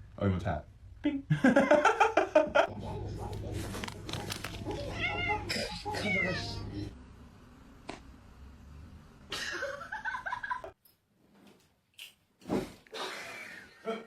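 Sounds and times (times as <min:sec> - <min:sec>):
cat meowing: 0:04.7 - 0:06.6.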